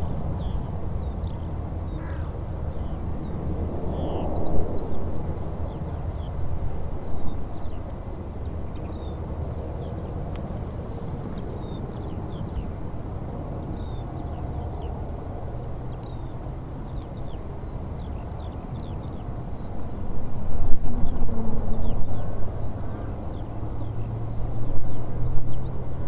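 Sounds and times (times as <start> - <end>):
small birds chirping: 0.4 - 20.0.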